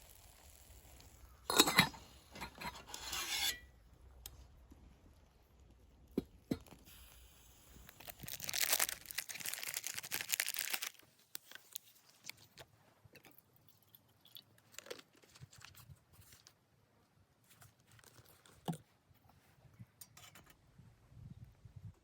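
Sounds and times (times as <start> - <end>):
small clicks and crackles: 5.6 - 16.6
rustling and tearing: 7.8 - 12.6
crunching and crinkling handling: 7.8 - 13.4, 14.5 - 16.6, 17.4 - 18.9.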